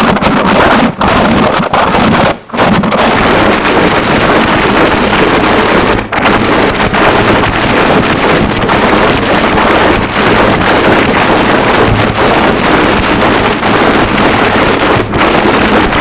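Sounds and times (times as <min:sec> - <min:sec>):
dense distorted static: 0:00.0 - 0:16.0.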